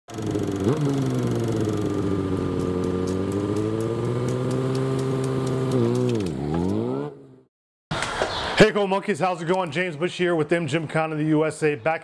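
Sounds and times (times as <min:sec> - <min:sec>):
motorcycle engine running: 0:00.1 - 0:07.4.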